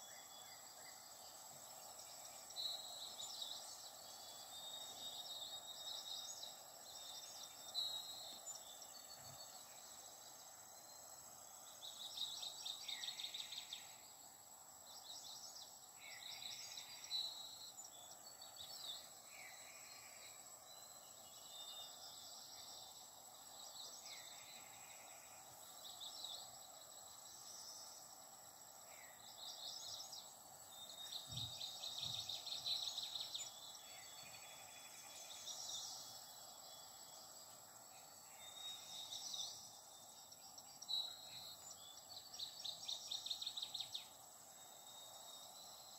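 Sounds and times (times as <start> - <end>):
background hiss: 0.0 - 45.9
small birds chirping and trilling: 0.0 - 45.9.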